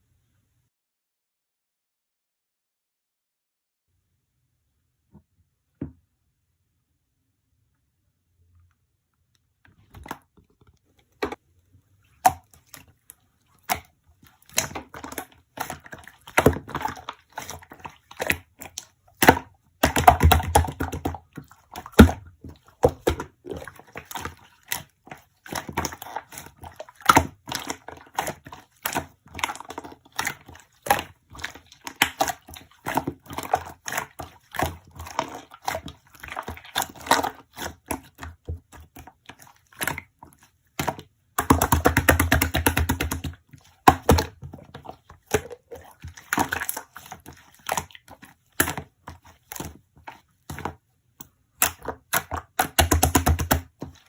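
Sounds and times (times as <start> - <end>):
slime clicking and popping: 51.6 - 53.6.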